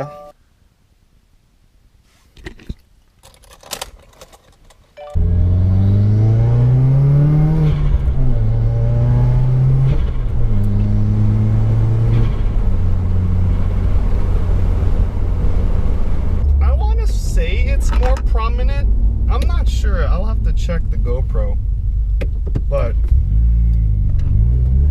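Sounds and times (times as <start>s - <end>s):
car engine accelerating: 5.2s - 17.3s, 17.9s - 24.9s.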